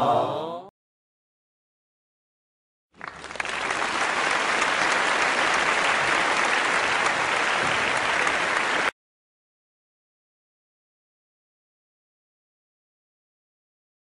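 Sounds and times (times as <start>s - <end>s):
crowd applause: 3.0s - 9.0s.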